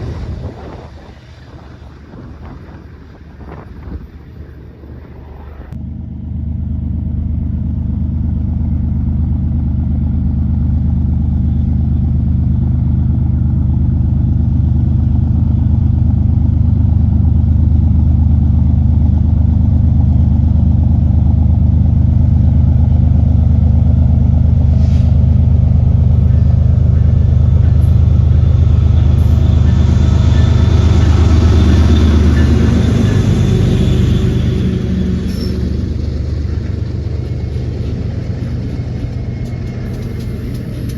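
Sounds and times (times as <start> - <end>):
locomotive engines droning: 0.0 - 40.9
wheel and rail hiss: 24.6 - 40.9.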